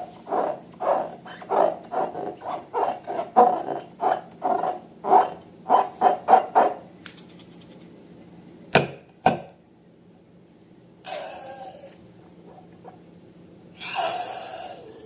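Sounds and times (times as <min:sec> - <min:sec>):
sharp snaps: 0:07.0 - 0:07.8.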